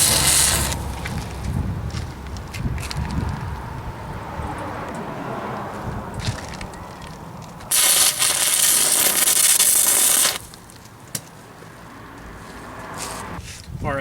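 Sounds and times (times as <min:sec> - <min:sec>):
welding arc crackling: 0:00.0 - 0:01.0, 0:07.7 - 0:10.7.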